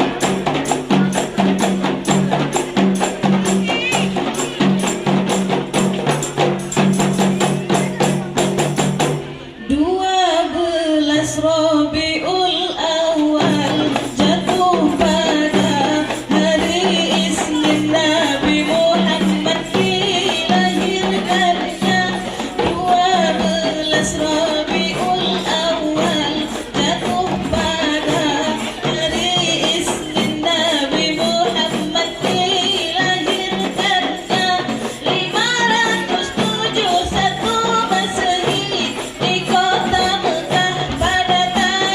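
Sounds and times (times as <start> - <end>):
frame drum ensemble playing: 0.0 - 9.6, 12.7 - 41.9.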